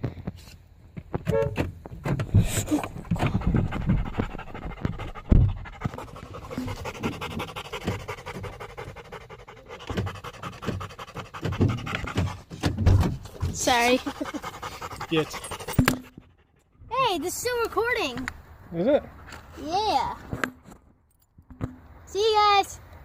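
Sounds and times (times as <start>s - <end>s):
loud thump: 1.6s - 5.7s, 11.5s - 13.7s
dog panting: 2.4s - 18.1s.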